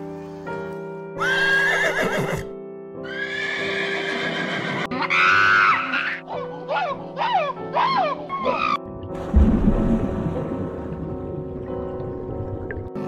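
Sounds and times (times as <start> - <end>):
background music: 0.0 - 13.0
animal calls with wavering pitch: 5.0 - 8.8.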